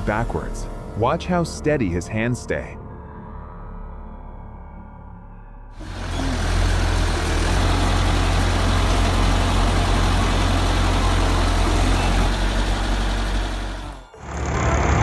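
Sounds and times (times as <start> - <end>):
bulldozer diesel engine running: 5.8 - 15.0.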